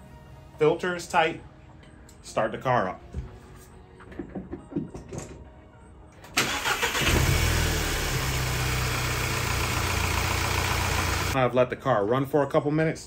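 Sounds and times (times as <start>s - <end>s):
car engine starting and idling: 6.2s - 11.4s.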